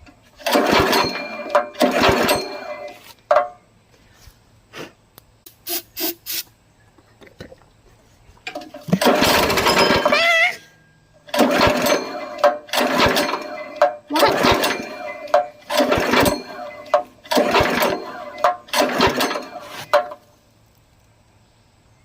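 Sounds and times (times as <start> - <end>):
small engine sputtering: 0.4 - 3.0, 8.9 - 10.5, 11.3 - 20.2
engine pops: 8.5 - 10.2, 11.3 - 20.3.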